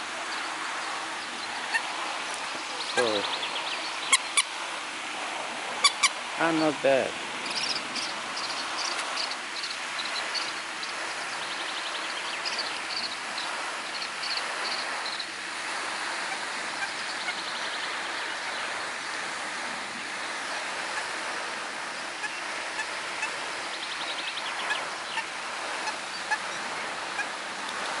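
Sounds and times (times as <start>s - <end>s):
running water: 0.0s - 28.0s
bird or insect chirps and trills: 0.3s - 4.5s, 7.4s - 15.4s.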